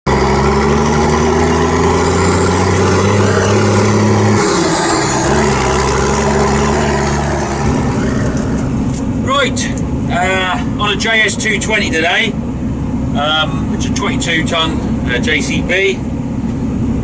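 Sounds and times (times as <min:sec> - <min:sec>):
excavator diesel engine running: 0:00.1 - 0:17.0.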